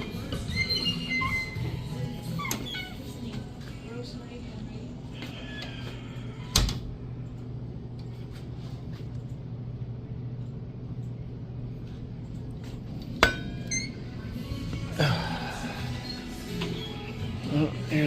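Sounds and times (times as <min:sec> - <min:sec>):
steady low hum: 0:00.0 - 0:18.0
metallic ringing: 0:13.2 - 0:14.0.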